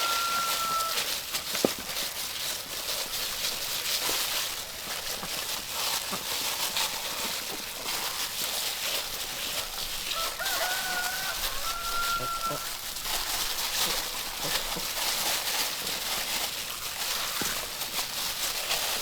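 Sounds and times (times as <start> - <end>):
rooster crowing: 0.0 - 1.1, 10.0 - 12.8.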